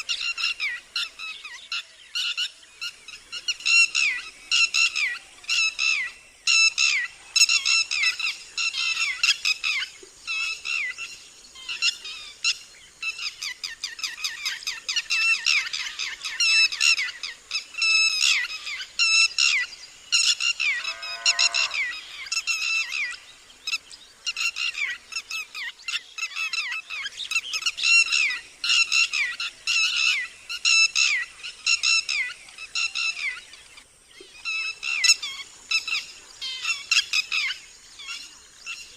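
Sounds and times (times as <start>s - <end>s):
lapwing alarm call: 0.0s - 33.4s
lower falling bird call: 19.4s - 25.0s.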